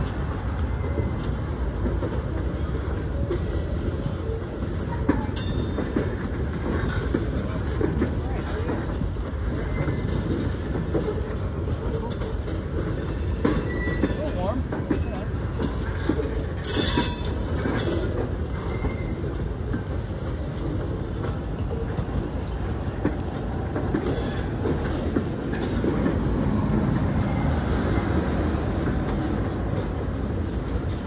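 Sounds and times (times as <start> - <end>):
train wheels rumbling and clacking: 0.0 - 31.0
high wheel squeal: 9.5 - 10.4, 13.5 - 14.3, 16.6 - 19.4.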